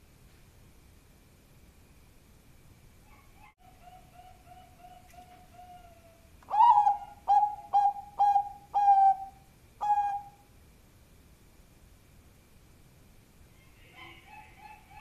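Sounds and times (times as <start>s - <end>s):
dove cooing: 3.1s - 10.4s.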